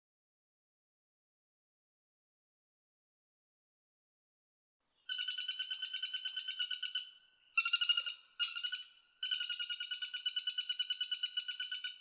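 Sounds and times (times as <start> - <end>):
woodpecker rattling calls: 5.1 - 12.0.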